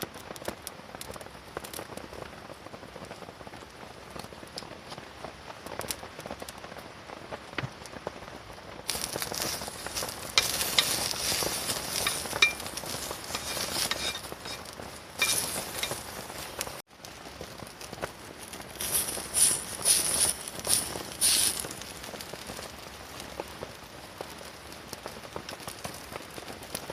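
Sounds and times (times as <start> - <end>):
food sizzling in a pan: 8.9 - 16.8, 18.8 - 22.8
soft patter with light clicks: 8.9 - 26.9.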